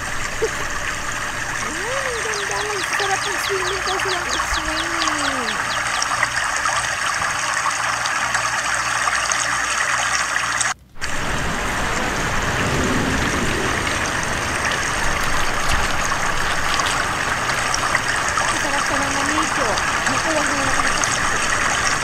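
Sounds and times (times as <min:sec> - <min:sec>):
rain falling on water: 0:00.0 - 0:22.0
low rumble: 0:10.8 - 0:22.0.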